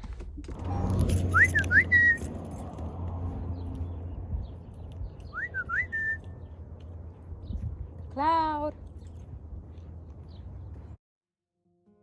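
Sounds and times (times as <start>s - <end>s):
person whistling a call: 1.3s - 2.2s, 5.3s - 6.3s
steady low rumble: 2.4s - 11.0s.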